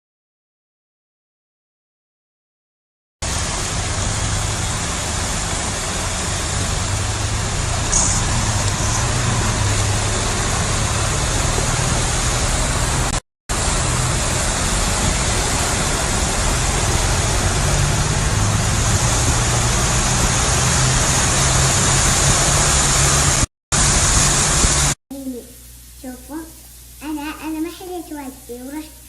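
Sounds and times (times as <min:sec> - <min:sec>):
low hum: 0:03.2 - 0:25.0
road and rain noise: 0:03.2 - 0:25.4.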